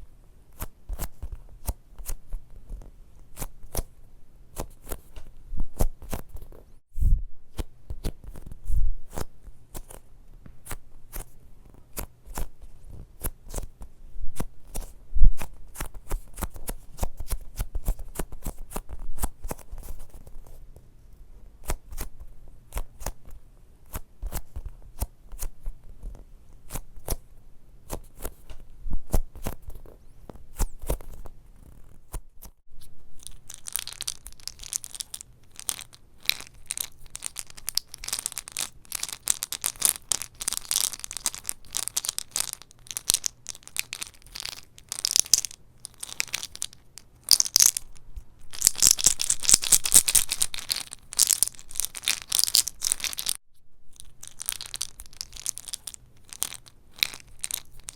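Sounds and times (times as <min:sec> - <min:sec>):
crisp crackling and crunching: 0:33.1 - 0:57.9.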